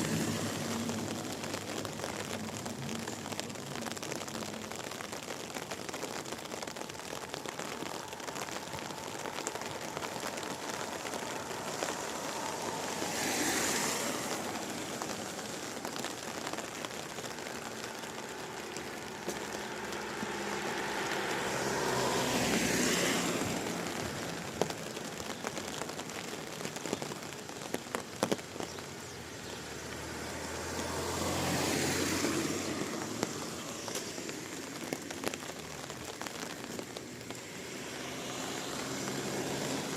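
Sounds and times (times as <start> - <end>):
steady rain: 0.0 - 39.9
tyres hissing on wet road: 0.0 - 39.9.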